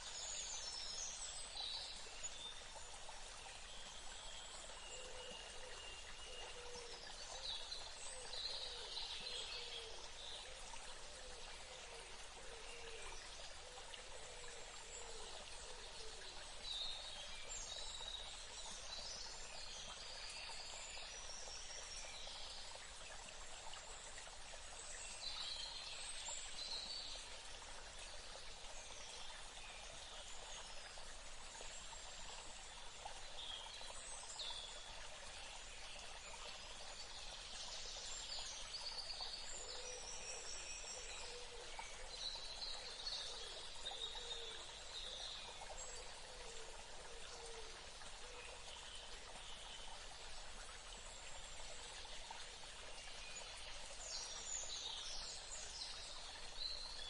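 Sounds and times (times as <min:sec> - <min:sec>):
steady background hiss: 0:00.0 - 0:57.0.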